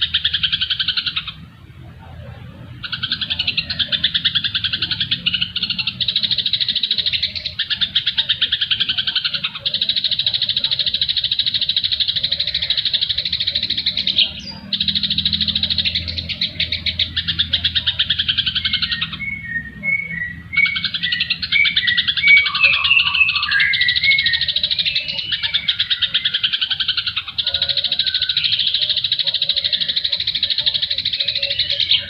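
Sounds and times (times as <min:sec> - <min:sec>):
buzzy chattering bird trill: 0:00.0 - 0:01.4, 0:02.0 - 0:32.0
short whistled bird notes: 0:18.8 - 0:25.6.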